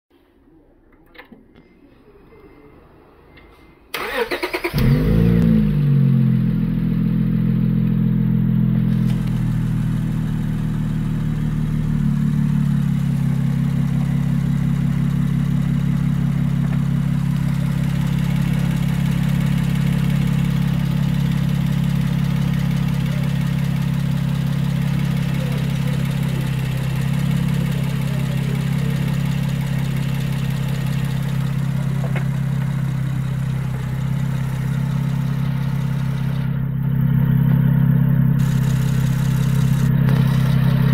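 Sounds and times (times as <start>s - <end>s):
car engine idling: 3.9s - 40.9s.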